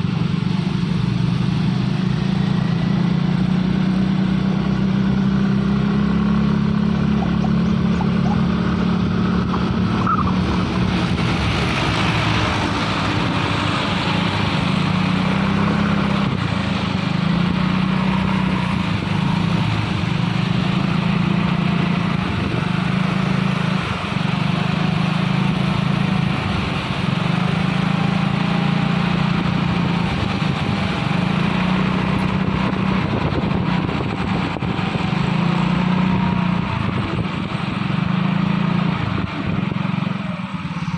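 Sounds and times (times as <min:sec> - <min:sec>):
diesel truck engine labouring: 0:00.0 - 0:40.9.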